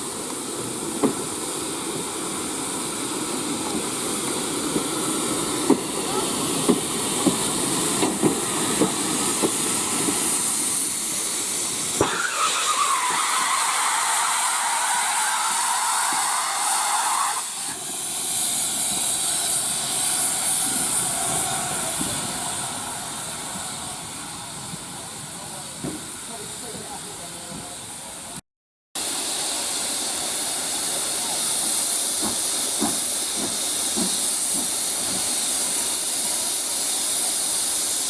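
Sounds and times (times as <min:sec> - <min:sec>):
steam locomotive hissing: 0:00.0 - 0:28.4, 0:29.0 - 0:38.0
strong rush of steam: 0:00.0 - 0:28.4, 0:29.0 - 0:38.0.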